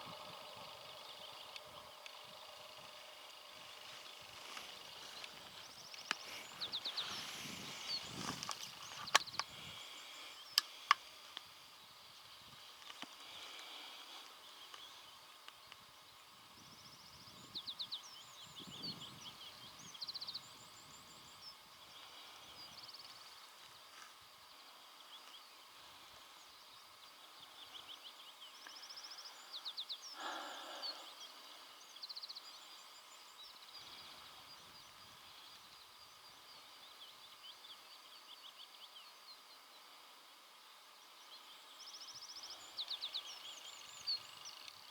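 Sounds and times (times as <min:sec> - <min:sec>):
small songbirds trilling: 0:00.0 - 0:44.9
soft rustles: 0:03.6 - 0:10.1.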